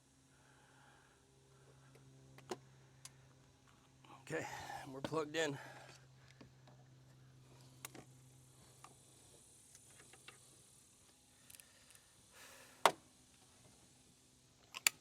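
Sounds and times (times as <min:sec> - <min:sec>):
faint low hum: 0:00.0 - 0:15.0
connectors clicking being plugged in: 0:14.7 - 0:15.0.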